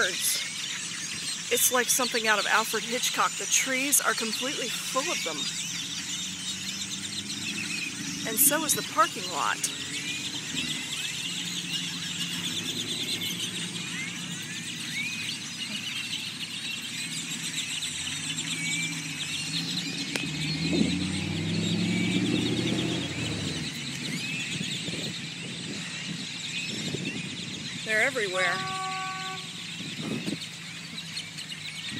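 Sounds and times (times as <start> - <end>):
flock of birds chattering: 0.0 - 31.9
car driving past: 17.7 - 25.1.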